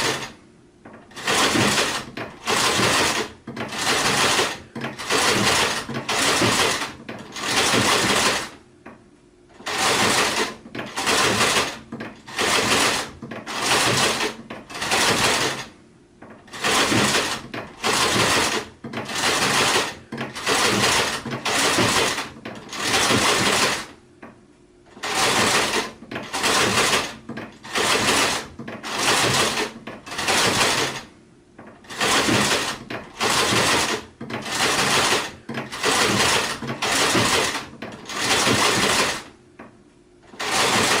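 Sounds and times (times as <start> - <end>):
sewing machine stitching: 0.0 - 8.6, 9.5 - 24.0, 24.9 - 39.4, 40.2 - 41.0.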